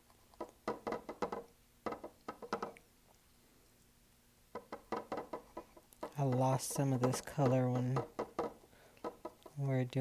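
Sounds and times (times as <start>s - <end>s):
paintbrush tapping on canvas: 0.3s - 2.8s, 4.5s - 9.6s.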